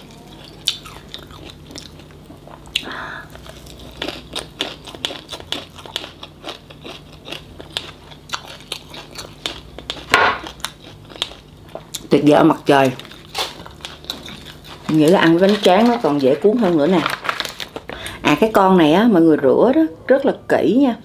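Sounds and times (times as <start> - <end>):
chewing with wet clicks and crunches: 0.0 - 16.4.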